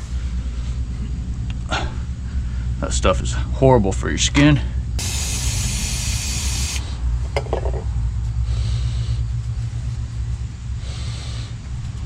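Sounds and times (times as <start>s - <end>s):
aerosol spray hisses: 5.0s - 6.8s.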